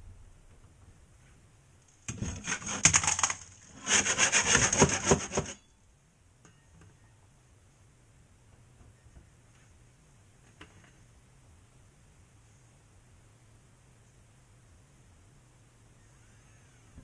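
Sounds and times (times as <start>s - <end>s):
hand tool rasping on drywall: 2.1s - 5.6s.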